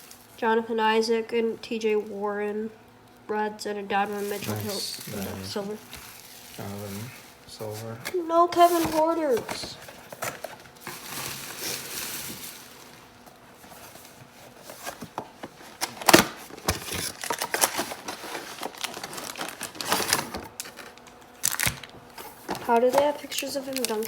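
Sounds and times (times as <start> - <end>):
plastic wrapper crinkling and tearing: 4.0 - 7.8, 8.6 - 13.2, 15.7 - 24.0
cards shuffling and clicking: 14.7 - 24.0.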